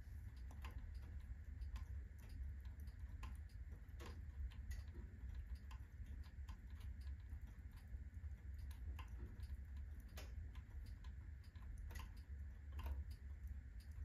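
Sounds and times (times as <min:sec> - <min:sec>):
firewood crackling in fireplace: 0:00.0 - 0:14.0.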